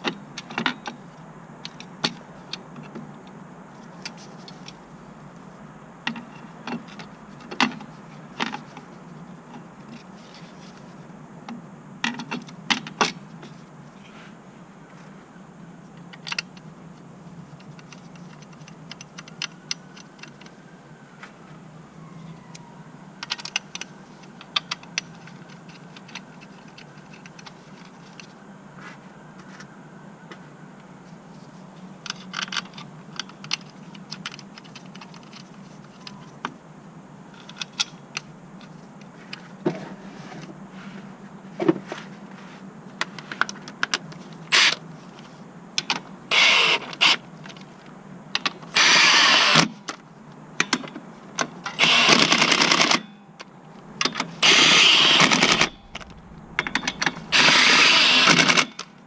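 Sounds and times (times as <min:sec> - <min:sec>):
tools clicking on car parts: 0:50.6 - 0:58.9
steady low hum: 0:53.2 - 0:59.0
loud bursts: 0:54.4 - 0:58.6.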